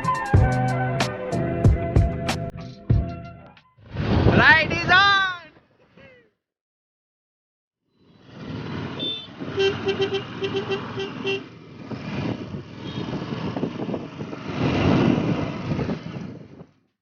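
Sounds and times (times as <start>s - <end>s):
engine and road noise: 7.9s - 17.0s
vehicle horn beeps: 9.0s - 11.5s, 12.8s - 13.2s.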